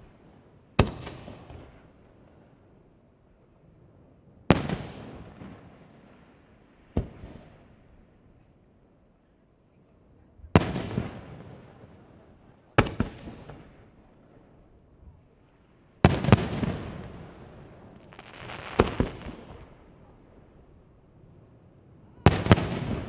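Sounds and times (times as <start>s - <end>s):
firework crackling: 16.0s - 23.0s
firework shells bursting: 18.0s - 19.8s.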